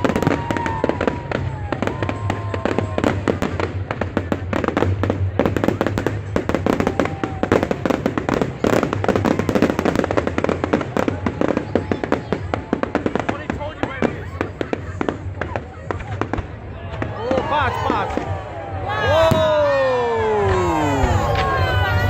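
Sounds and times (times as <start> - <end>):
fireworks crackling bangs: 0.0 - 22.0.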